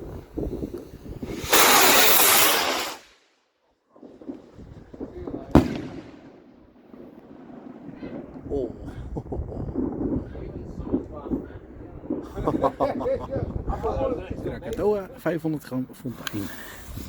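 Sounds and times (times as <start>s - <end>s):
firework rocket launching hiss: 0.1s - 3.4s, 5.6s - 6.4s, 16.3s - 17.0s
firework bang: 1.2s - 3.1s, 4.0s - 13.0s.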